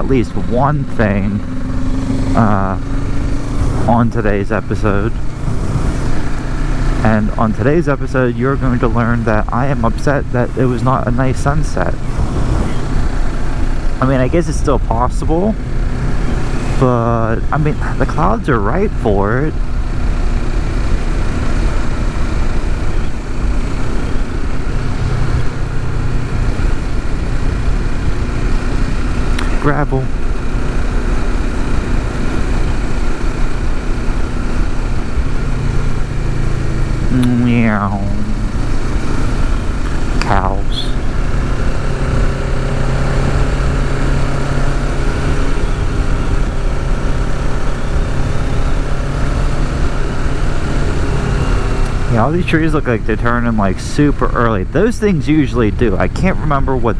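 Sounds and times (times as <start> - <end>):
motorcycle engine running: 0.0 - 56.9
wind noise on microphone: 11.9 - 14.0.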